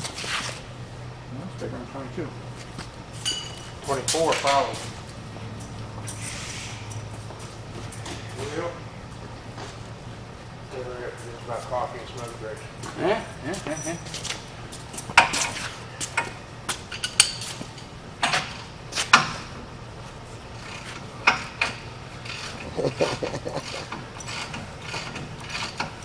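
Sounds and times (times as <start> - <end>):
hand tools clinking and knocking: 3.2 - 5.0, 12.2 - 19.4, 20.7 - 26.0.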